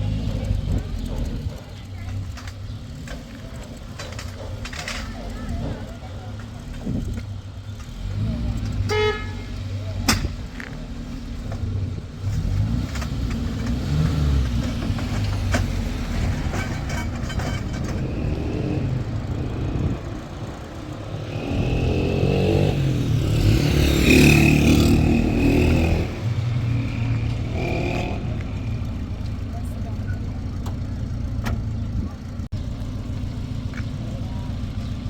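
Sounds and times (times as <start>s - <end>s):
traffic engine and road noise: 0.0s - 35.0s
loud vehicle passing: 12.2s - 30.1s.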